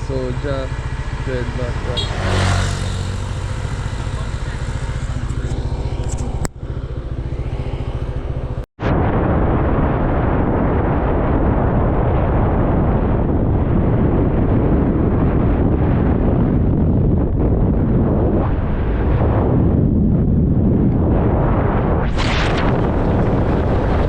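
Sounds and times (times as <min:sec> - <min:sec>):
motorbike engine running: 0:00.0 - 0:08.7
wind rushing over microphone: 0:00.0 - 0:24.0.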